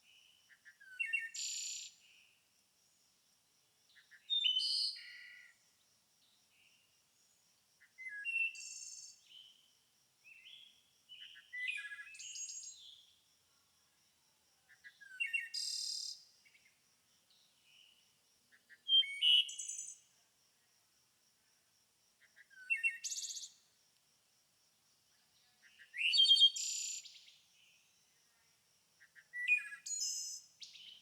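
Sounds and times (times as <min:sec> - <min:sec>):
songbirds singing: 0:03.9 - 0:05.6, 0:14.7 - 0:20.1, 0:29.0 - 0:31.0.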